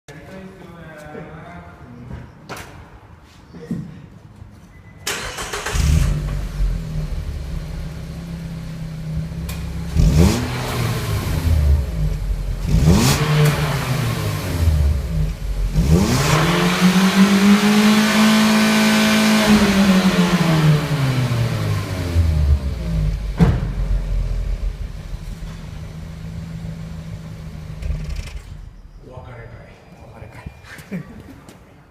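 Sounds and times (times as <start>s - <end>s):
car engine idling and revving: 5.2s - 29.0s.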